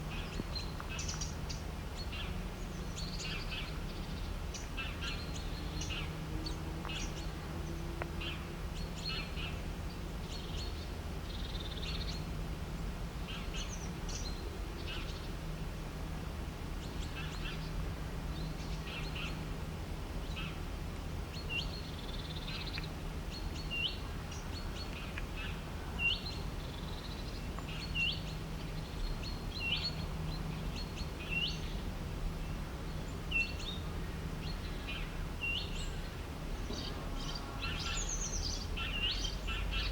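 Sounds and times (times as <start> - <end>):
birds chirping and calling: 33.3 - 39.9.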